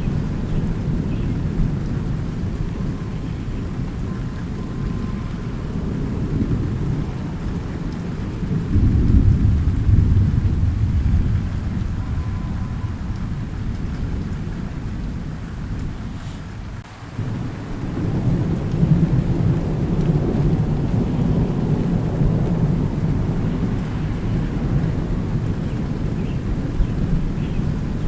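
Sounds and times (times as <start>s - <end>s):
steady rain: 0.0s - 28.0s
thunder rumbling: 0.0s - 28.0s.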